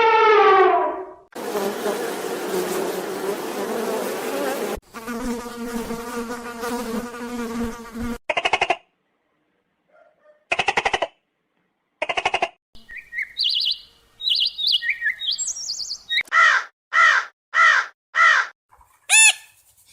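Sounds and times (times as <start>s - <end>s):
insect wings buzzing: 1.4s - 8.2s.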